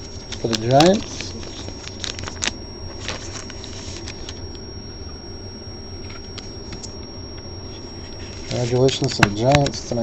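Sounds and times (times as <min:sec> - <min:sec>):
faint high whine: 0:00.0 - 0:10.0
steady low hum: 0:00.0 - 0:10.0
cards clicking and rustling: 0:00.3 - 0:04.4, 0:08.3 - 0:09.9.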